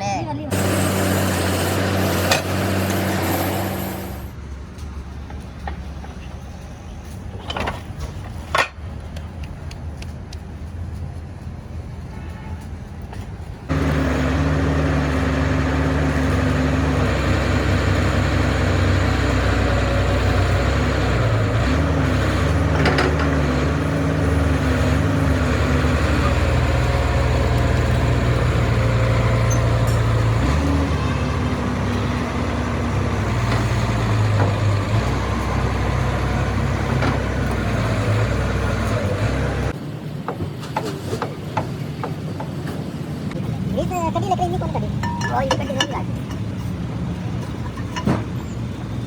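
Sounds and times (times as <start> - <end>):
excavator diesel engine running: 0.4 - 7.4, 13.7 - 39.8
sharp metallic clanks: 29.4 - 30.4.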